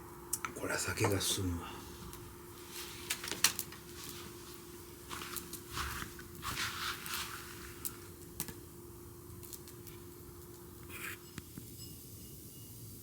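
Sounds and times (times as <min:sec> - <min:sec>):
campfire crackling: 0:00.0 - 0:11.0
fire hissing: 0:00.0 - 0:11.4
fire popping: 0:02.0 - 0:10.7.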